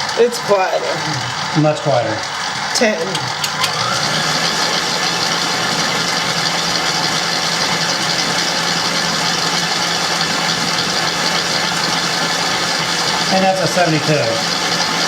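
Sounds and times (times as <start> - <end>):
stand mixer whirring: 0.0 - 15.0.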